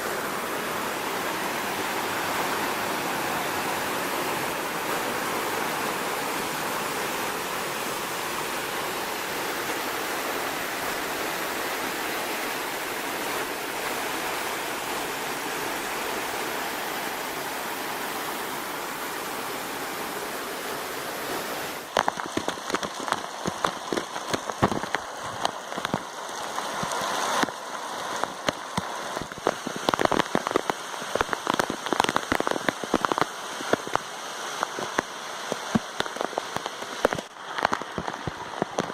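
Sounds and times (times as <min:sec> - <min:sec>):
waterfall rushing: 0:00.0 - 0:38.9
water drops tapping microphone: 0:21.9 - 0:27.6, 0:28.2 - 0:38.9.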